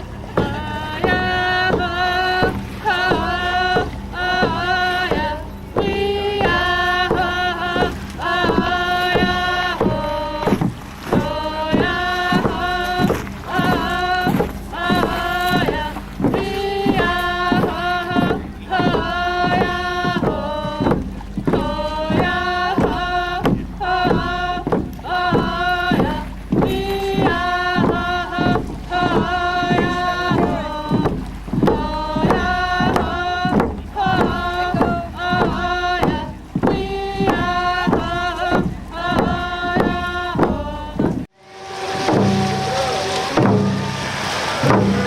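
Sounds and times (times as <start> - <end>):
voices chanting in unison: 0.0 - 45.0
low wind rumble: 41.2 - 45.0.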